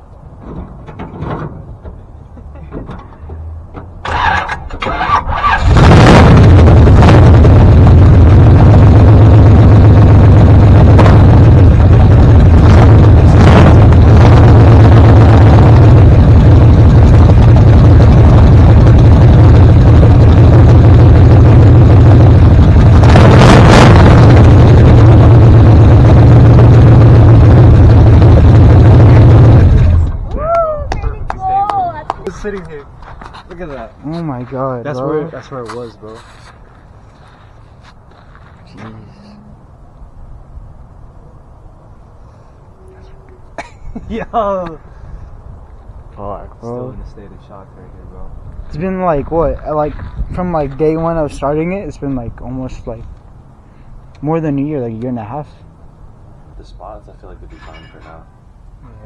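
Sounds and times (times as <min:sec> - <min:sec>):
truck engine cranking and running: 0:00.0 - 0:33.8.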